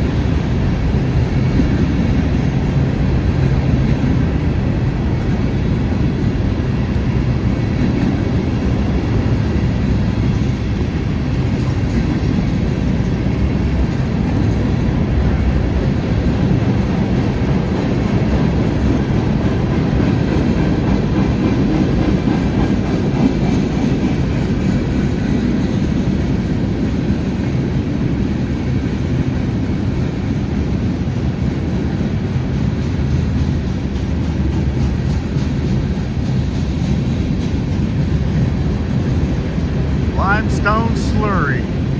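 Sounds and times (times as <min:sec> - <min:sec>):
freight train rolling past: 0:00.0 - 0:41.9.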